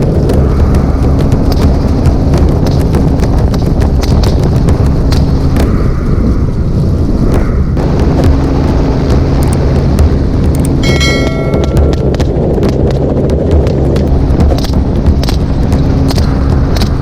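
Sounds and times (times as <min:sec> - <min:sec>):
helicopter rotor and engine: 0:00.0 - 0:17.0
wind buffeting microphone: 0:00.0 - 0:17.0
high-pitched tone: 0:10.8 - 0:12.2.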